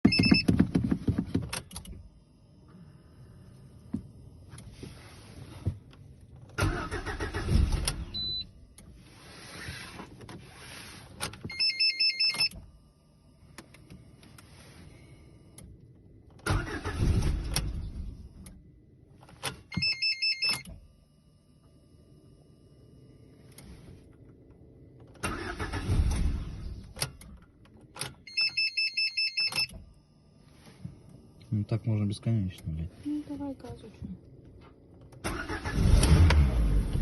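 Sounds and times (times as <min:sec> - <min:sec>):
short electronic beeps: 0:00.0 - 0:00.5, 0:08.1 - 0:08.5, 0:11.5 - 0:12.5, 0:19.8 - 0:20.6, 0:28.3 - 0:29.7
engine cranking on starter: 0:06.5 - 0:08.4, 0:16.3 - 0:18.6, 0:25.0 - 0:28.1, 0:35.0 - 0:37.0.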